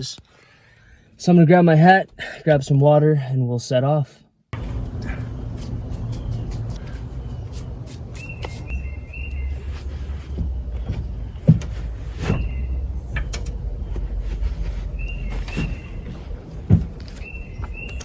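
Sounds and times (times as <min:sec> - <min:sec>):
bird chirping: 0:04.6 - 0:18.0
low outdoor rumble: 0:04.6 - 0:18.0.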